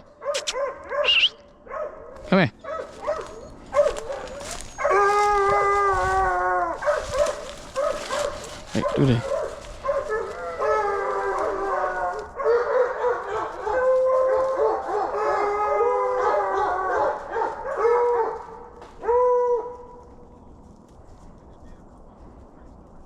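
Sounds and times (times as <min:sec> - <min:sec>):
hounds baying: 0:00.0 - 0:20.2.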